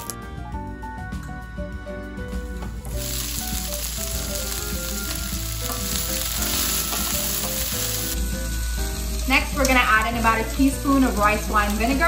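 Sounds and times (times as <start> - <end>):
soft background music: 0.0 - 12.0
vegetables sizzling in oil: 2.8 - 12.0.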